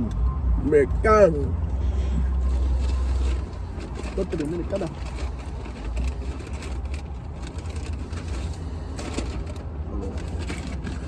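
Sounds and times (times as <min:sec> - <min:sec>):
clicks and rustles: 0:02.5 - 0:11.0.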